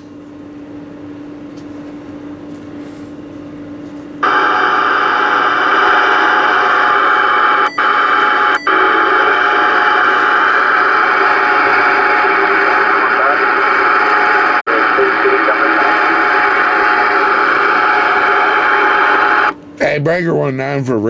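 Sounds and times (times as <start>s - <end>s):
radio static hissing: 4.2s - 19.6s.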